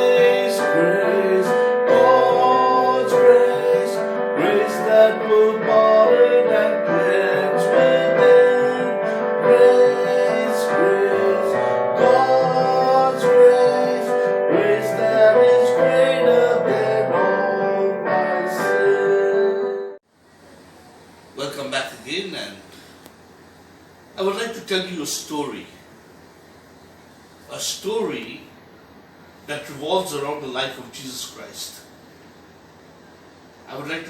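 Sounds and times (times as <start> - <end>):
person singing: 0.0 - 20.0
piano music: 0.0 - 20.0.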